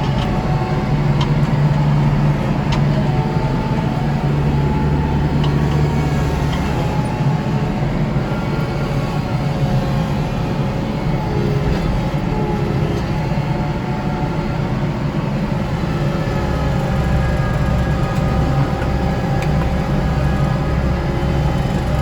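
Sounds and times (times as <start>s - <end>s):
tractor diesel engine with snow blower: 0.0s - 22.0s.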